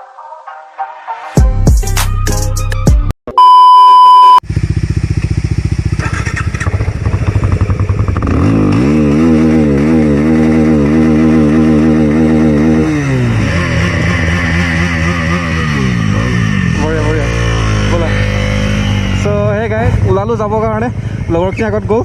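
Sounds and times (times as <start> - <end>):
electronic beep: 3.3 - 4.4
motorcycle engine idling and revving: 4.4 - 22.0.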